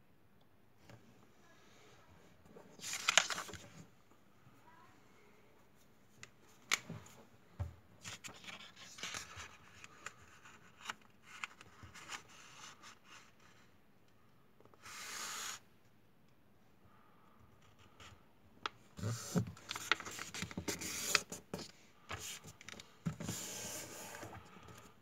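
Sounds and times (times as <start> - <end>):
paper crinkling and rubbing: 2.7 - 3.7, 19.0 - 22.6
paper sliding rub: 23.2 - 24.4.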